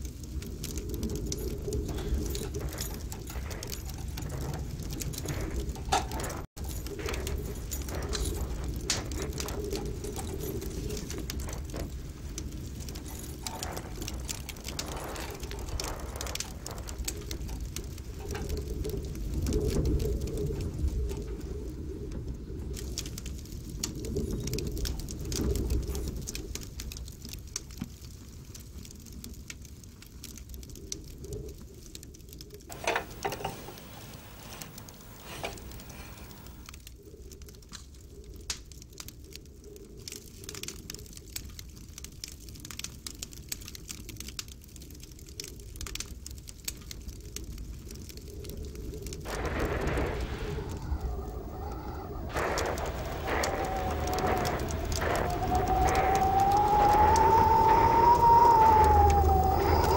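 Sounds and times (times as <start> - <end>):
low cooing calls: 32.7 - 36.7, 49.3 - 59.9
small clicks: 32.7 - 36.9, 45.4 - 59.9.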